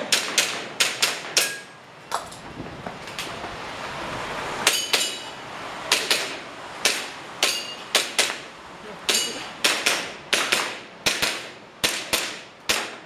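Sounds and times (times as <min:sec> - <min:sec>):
airsoft pistol shots: 0:09.6 - 0:13.0.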